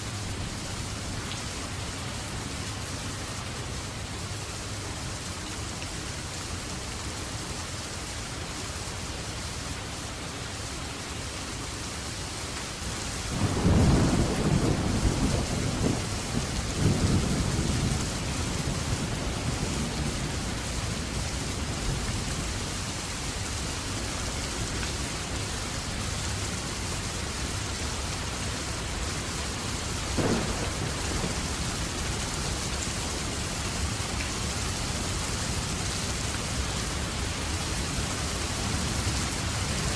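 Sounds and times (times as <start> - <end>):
rain falling: 0.0 - 39.9
thunder rumbling: 13.4 - 20.2, 30.2 - 32.6.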